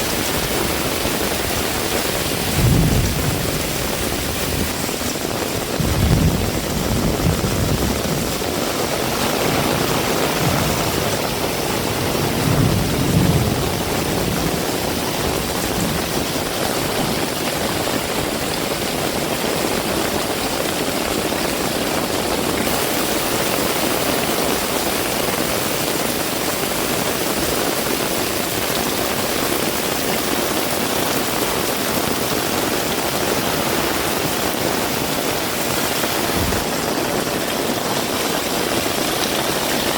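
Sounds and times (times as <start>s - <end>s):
heavy rain hissing: 0.0s - 39.9s
low rumbles: 2.3s - 8.5s, 36.3s - 36.7s.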